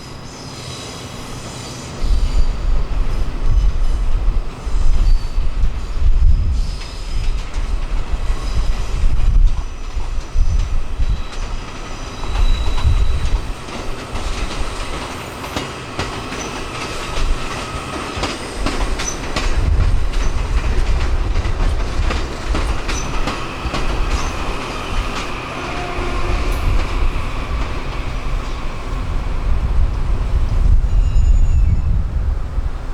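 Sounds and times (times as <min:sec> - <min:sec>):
train rumbling: 0:00.0 - 0:32.9
wheels clicking over rail joints: 0:06.7 - 0:29.0.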